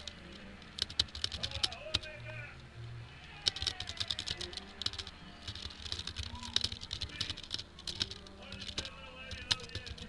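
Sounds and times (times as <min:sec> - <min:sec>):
typing on computer keyboard: 0:00.0 - 0:02.4, 0:03.3 - 0:10.0.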